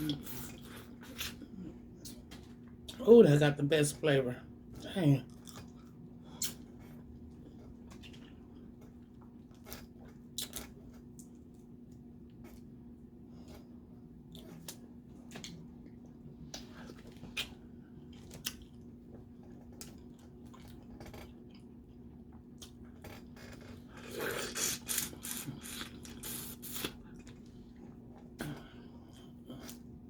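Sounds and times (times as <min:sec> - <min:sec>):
steady low hum: 0:00.0 - 0:30.0
chewing: 0:13.4 - 0:29.8.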